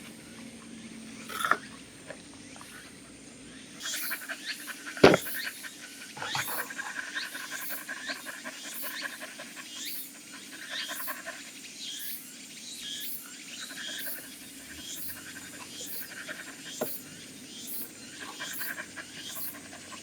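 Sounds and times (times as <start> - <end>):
dog panting: 3.8 - 12.0, 13.5 - 20.0.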